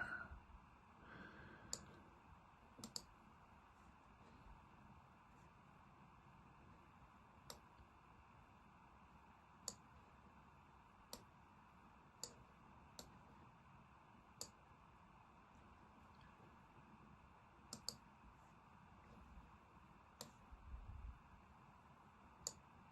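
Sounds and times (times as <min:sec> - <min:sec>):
computer mouse clicks: 0:02.8 - 0:03.1, 0:07.4 - 0:07.8, 0:09.6 - 0:09.9, 0:11.1 - 0:11.3, 0:12.2 - 0:12.4, 0:13.0 - 0:13.2, 0:14.4 - 0:14.6, 0:17.7 - 0:18.1, 0:20.2 - 0:20.5, 0:22.4 - 0:22.6.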